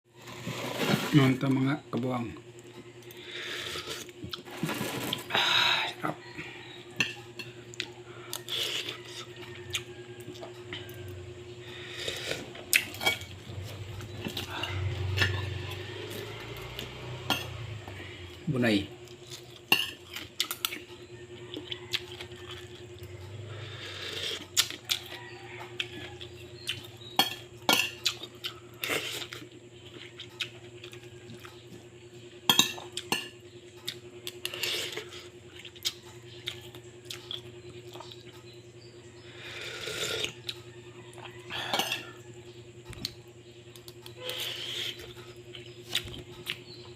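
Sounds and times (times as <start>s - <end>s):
steady low hum: 0.1s - 46.9s
cutlery clinking on a plate: 41.5s - 42.2s.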